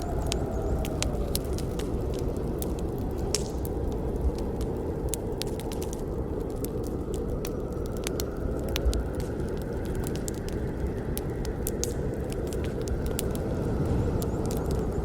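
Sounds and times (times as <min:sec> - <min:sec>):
burning wood crackling: 0:00.0 - 0:15.0
rush of campfire flames: 0:00.0 - 0:15.0.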